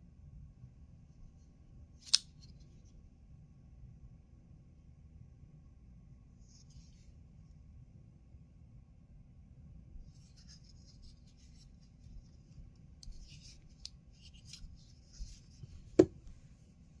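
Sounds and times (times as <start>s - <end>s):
folding knife handling rubbing: 13.0s - 15.8s.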